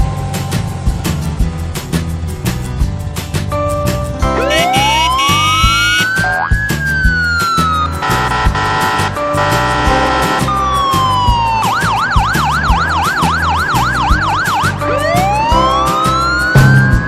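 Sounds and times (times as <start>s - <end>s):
cartoon music with steady beat: 4.2s - 12.8s, 13.8s - 17.0s
siren-like sound effect: 4.4s - 6.2s.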